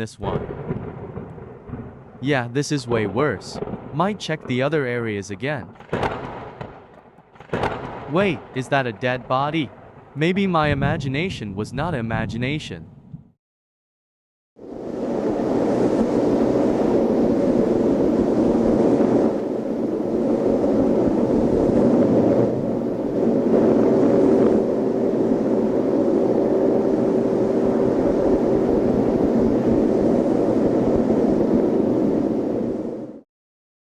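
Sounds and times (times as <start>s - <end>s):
loud rumbling drone: 14.7s - 33.0s.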